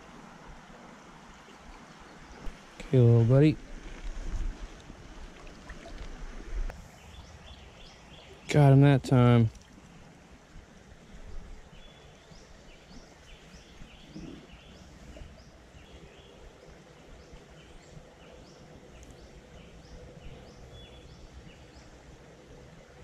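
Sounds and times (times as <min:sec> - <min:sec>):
songbirds singing: 0:06.8 - 0:09.6, 0:11.1 - 0:23.0.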